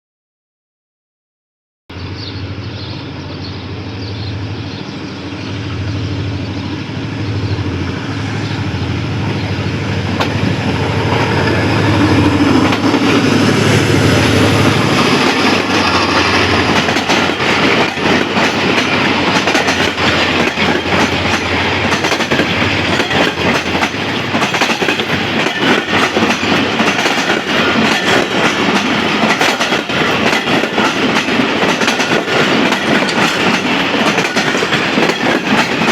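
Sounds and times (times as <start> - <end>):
locomotive engine drone: 1.9 - 29.4
train wheels clickety-clack: 10.0 - 35.9.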